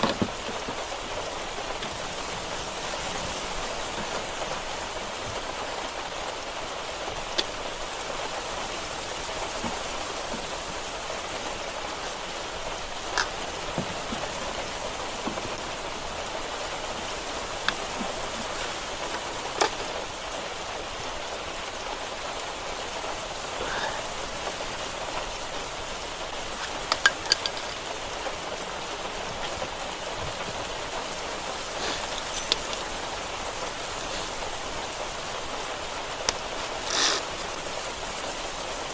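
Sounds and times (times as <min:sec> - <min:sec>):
sharp clicks and knocks: 0:00.0 - 0:00.9, 0:17.6 - 0:20.0, 0:26.6 - 0:27.8
steady rain hiss: 0:00.0 - 0:38.9.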